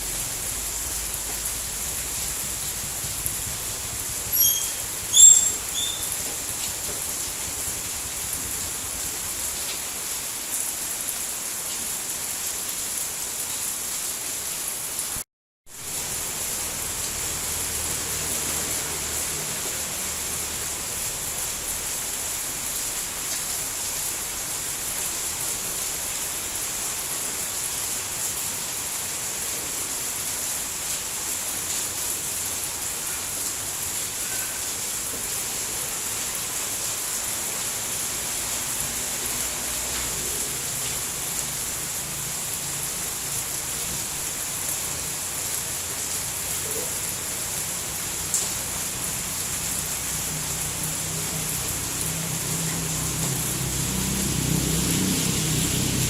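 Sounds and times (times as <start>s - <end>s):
steady rain falling: 0.0s - 56.0s
short high chirps: 4.3s - 6.2s.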